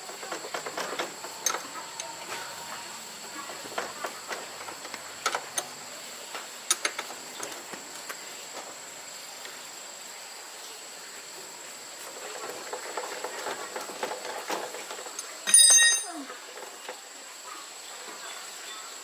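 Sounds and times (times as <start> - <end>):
metal parts clattering: 14.3 - 16.3.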